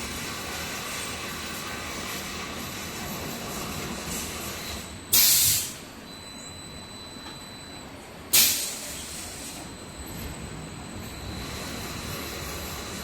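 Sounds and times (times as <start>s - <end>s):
hiss of released air: 5.1s - 5.8s, 8.4s - 9.6s.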